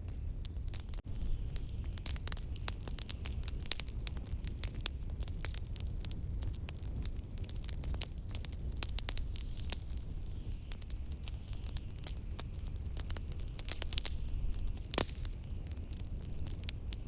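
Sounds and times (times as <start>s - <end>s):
low rumble of wind: 0.0s - 17.0s
wood fire crackling and popping: 0.0s - 17.0s.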